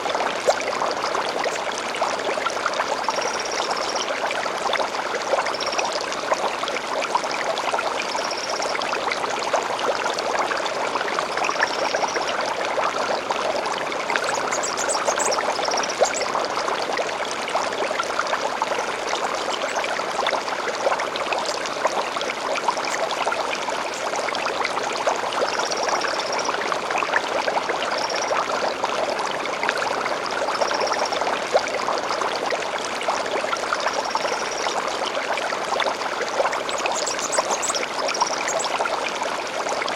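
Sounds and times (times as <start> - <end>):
stream babbling: 0.0 - 39.9
bird twittering: 14.2 - 16.3.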